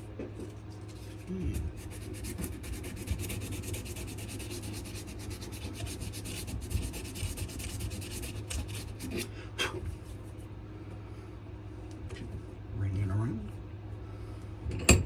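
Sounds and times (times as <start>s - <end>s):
sandpaper rubbing on wood: 0.9s - 9.3s.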